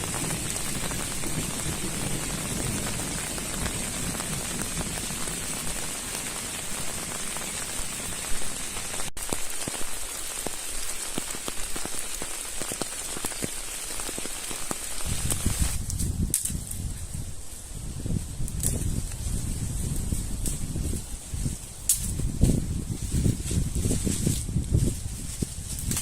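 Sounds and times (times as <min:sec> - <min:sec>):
raindrops ticking on a surface: 0:00.0 - 0:16.8
heavy rain: 0:00.0 - 0:24.9.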